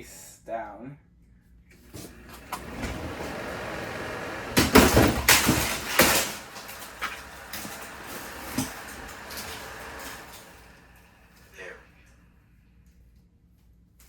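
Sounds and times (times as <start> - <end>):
box fan clattering onto floor: 1.9 - 10.8.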